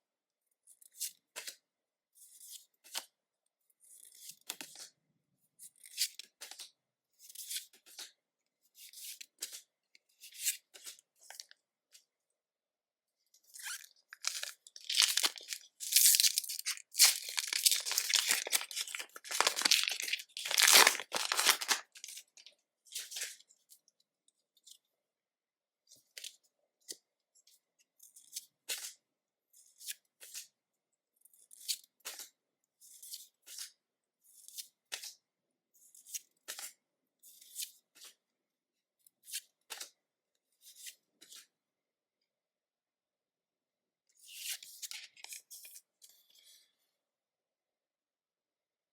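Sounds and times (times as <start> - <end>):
foil wrapper tearing and crinkling: 13.7 - 22.2.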